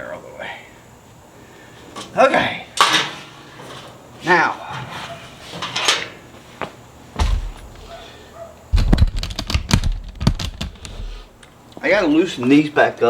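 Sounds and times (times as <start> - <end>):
thump: 7.2 - 8.0
metal exhaust pipes clanking: 7.2 - 8.2.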